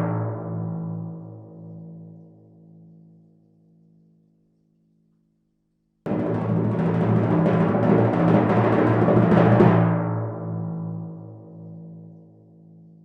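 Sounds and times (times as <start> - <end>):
timpani roll: 6.1 - 10.6.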